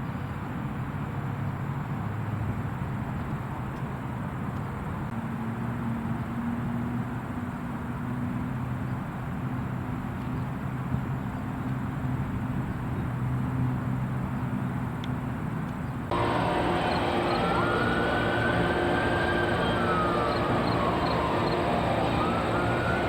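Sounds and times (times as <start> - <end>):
constant rushing noise: 16.1 - 23.0
low engine hum: 16.1 - 23.0.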